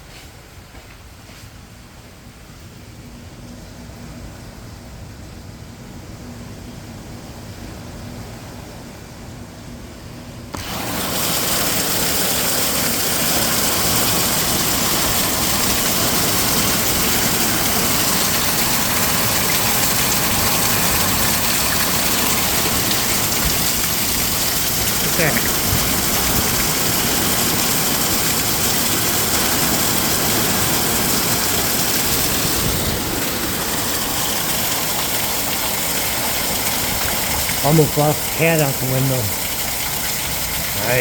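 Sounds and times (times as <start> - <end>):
heavy rain: 10.6 - 41.0
water pouring off roof: 10.6 - 41.0.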